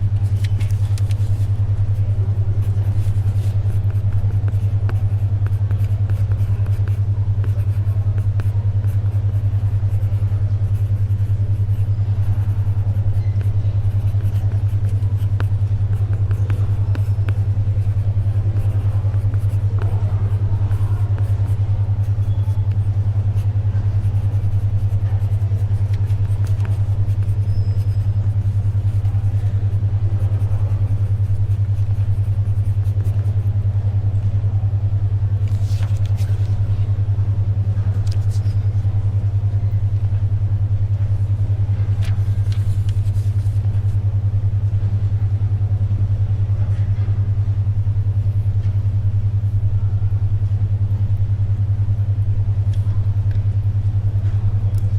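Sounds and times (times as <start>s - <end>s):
pencil writing: 0.0s - 33.6s, 35.4s - 36.7s, 38.0s - 38.6s, 42.0s - 44.0s
pulsing low hum: 0.0s - 54.9s
paper pages rustling: 0.1s - 1.7s, 35.4s - 36.6s, 38.0s - 38.6s, 41.8s - 43.9s.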